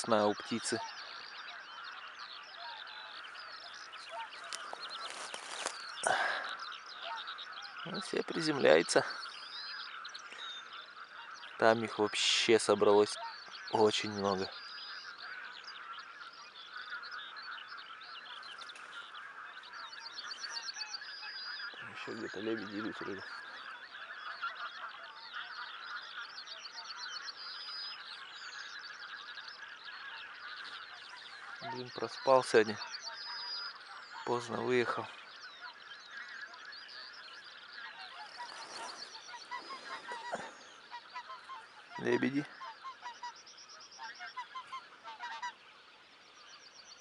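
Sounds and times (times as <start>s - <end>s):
sharp goose calls: 0.0s - 46.2s
geese honking: 0.0s - 46.4s.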